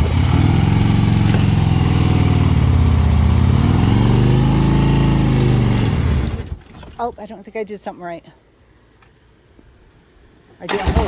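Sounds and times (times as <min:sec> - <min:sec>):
motorcycle engine running slowly: 0:00.0 - 0:06.6.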